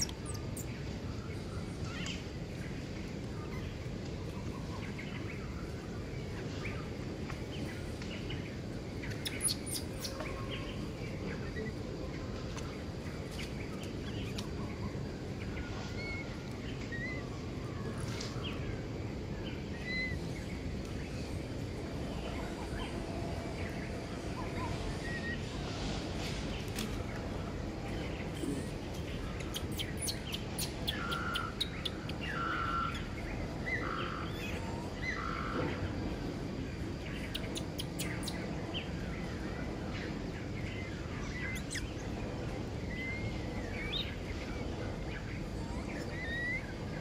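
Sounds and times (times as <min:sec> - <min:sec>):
bird chirps: 0:00.0 - 0:00.9, 0:09.0 - 0:11.7, 0:28.2 - 0:35.8, 0:37.1 - 0:39.0, 0:40.6 - 0:42.2, 0:45.2 - 0:47.0
low background rumble: 0:00.0 - 0:47.0.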